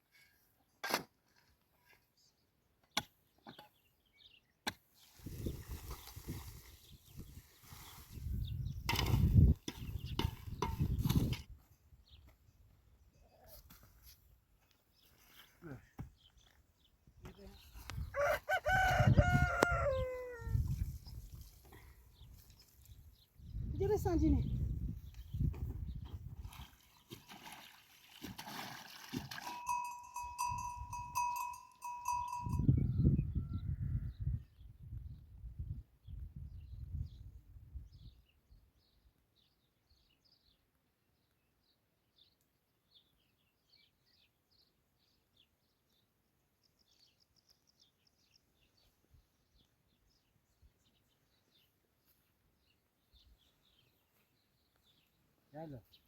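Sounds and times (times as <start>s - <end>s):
small birds chirping: 1.8s - 18.3s, 20.6s - 27.2s, 36.0s - 56.0s
livestock bell clanking: 29.4s - 32.8s.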